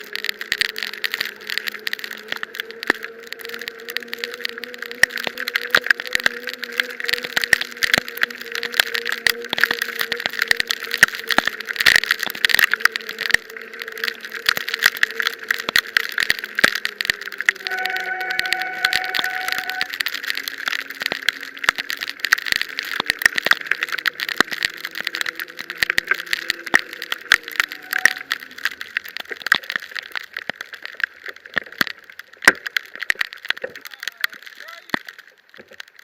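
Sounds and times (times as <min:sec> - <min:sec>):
rain pattering on camera: 0:00.0 - 0:36.0
low hum: 0:00.5 - 0:22.9
high steady tone: 0:17.6 - 0:19.9.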